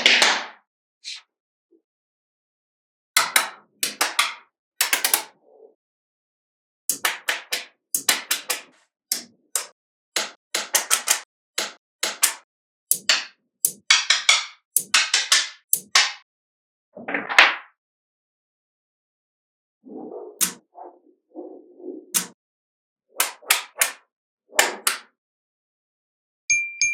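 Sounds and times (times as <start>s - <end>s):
balls rattling: 4.8s - 5.2s
magnetic balls clicking: 4.8s - 5.3s.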